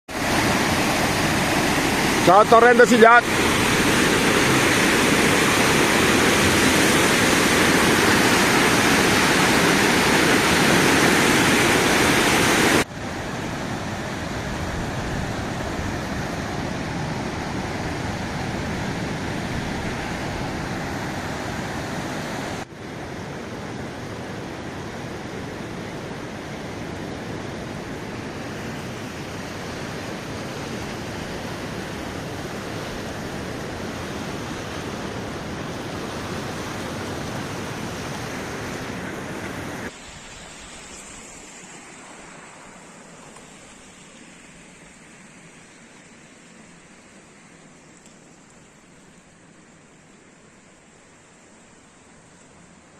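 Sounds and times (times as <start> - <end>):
heavy rain: 0.1 - 21.8
running water: 0.1 - 22.7, 27.6 - 52.9.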